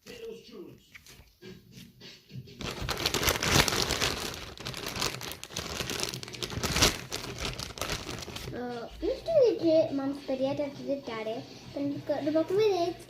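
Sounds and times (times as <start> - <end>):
slime crackling and popping: 2.6 - 8.6.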